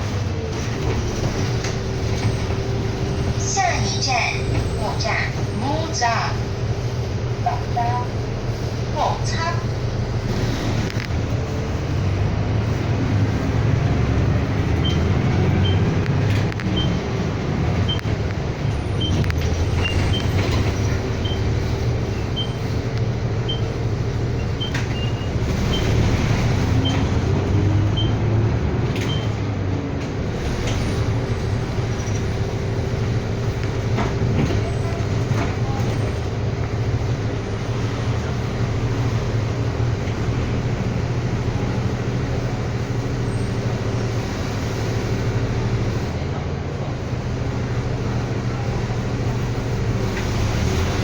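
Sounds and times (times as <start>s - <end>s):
bus engine and road rumble: 0.0s - 51.0s
turn signal beeps: 14.8s - 15.9s, 16.5s - 17.1s, 17.8s - 18.2s, 18.9s - 21.6s, 23.4s - 23.8s, 24.4s - 26.0s, 27.8s - 28.2s.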